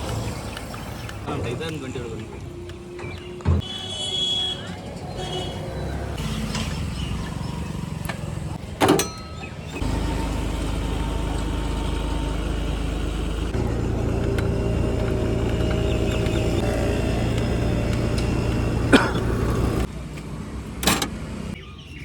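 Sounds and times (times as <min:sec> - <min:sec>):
vehicle engine running: 0:06.2 - 0:21.6.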